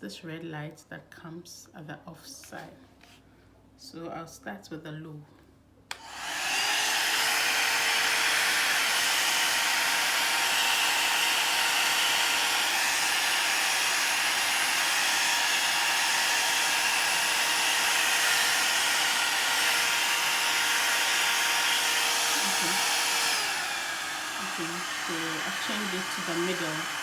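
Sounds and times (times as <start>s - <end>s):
hair dryer brush running: 5.9s - 27.0s.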